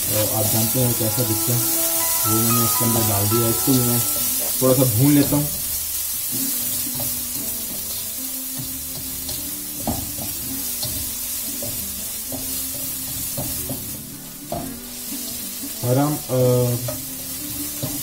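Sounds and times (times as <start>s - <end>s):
onions sizzling in hot oil: 0.0s - 18.0s
short pitched notes: 0.6s - 4.7s.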